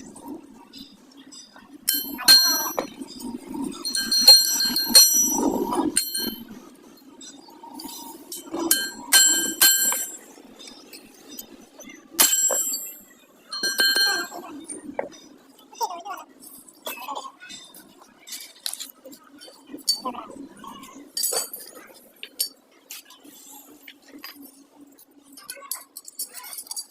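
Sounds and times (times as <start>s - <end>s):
steady low hum: 0.0s - 15.6s
metal strikes ringing: 1.9s - 3.0s, 3.8s - 6.5s, 8.4s - 10.2s, 12.2s - 13.0s, 13.6s - 14.4s.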